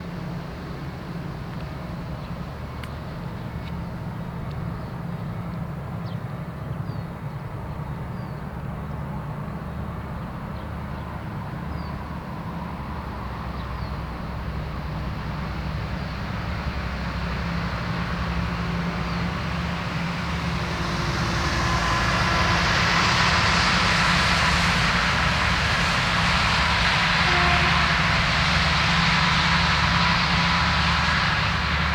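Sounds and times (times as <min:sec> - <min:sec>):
diesel locomotive drone: 0:00.0 - 0:31.9
wheel and rail noise: 0:00.0 - 0:31.9.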